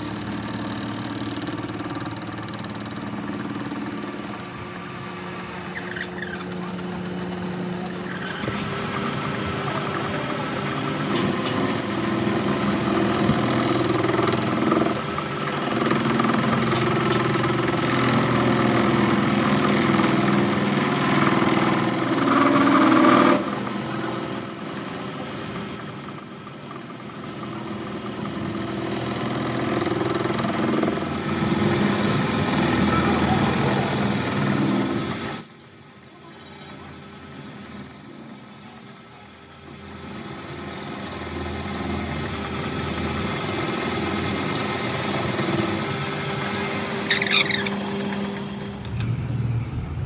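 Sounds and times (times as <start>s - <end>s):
power tool motor running: 0.0s - 39.0s, 39.6s - 49.1s
high-pitched whines: 46.5s - 50.0s.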